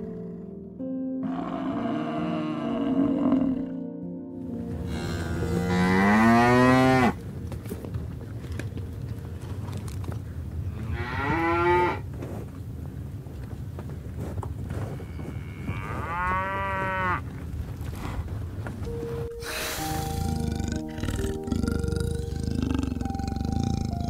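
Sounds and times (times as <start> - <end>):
soft background music: 0.0 - 13.2, 15.0 - 17.3, 18.5 - 24.0
cattle mooing: 1.2 - 3.8, 4.8 - 7.2, 10.7 - 12.0, 15.0 - 17.2, 19.7 - 24.0.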